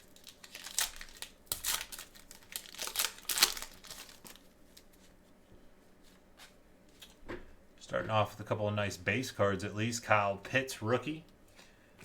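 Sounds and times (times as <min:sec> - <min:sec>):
plastic wrapping crinkling and tearing: 0:00.0 - 0:05.0.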